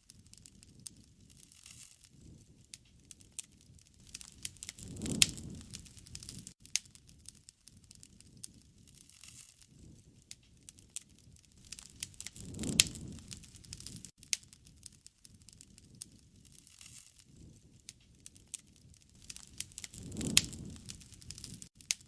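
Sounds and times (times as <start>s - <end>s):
bonfire crackling and popping: 0.0s - 22.0s
low rush of flame: 2.1s - 9.0s, 9.6s - 21.9s.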